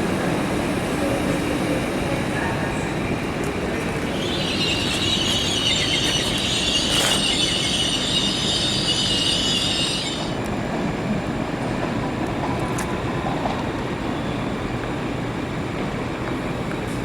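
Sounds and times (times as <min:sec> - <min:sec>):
low train rumble: 0:00.0 - 0:17.0
train wheels squealing: 0:03.5 - 0:10.4.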